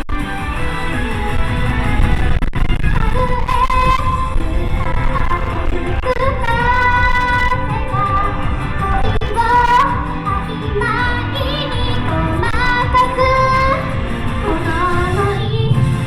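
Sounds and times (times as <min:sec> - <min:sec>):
wind rumbling on microphone: 0:00.0 - 0:10.1
amplified accompaniment: 0:00.0 - 0:16.0
woman singing pop song: 0:02.8 - 0:16.0.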